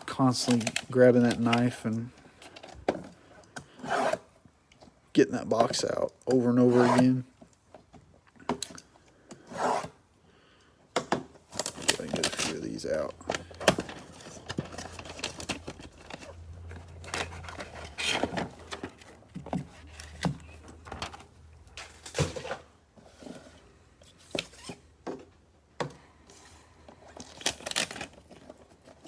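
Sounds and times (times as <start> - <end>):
cardboard boxes being handled: 13.4 - 25.2.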